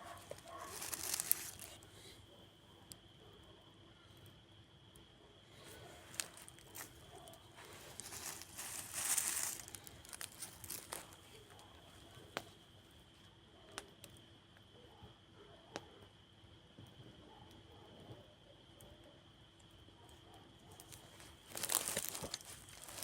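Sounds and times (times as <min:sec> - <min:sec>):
campfire crackling and popping: 0:00.0 - 0:01.9, 0:07.7 - 0:11.2, 0:20.8 - 0:23.0
hissing crackle rush: 0:00.0 - 0:02.1, 0:05.6 - 0:11.3, 0:20.8 - 0:23.0.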